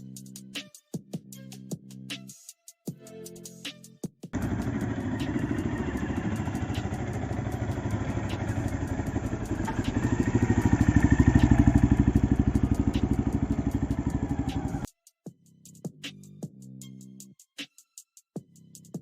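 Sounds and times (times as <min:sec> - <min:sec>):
motorcycle engine idling: 0:04.4 - 0:14.9.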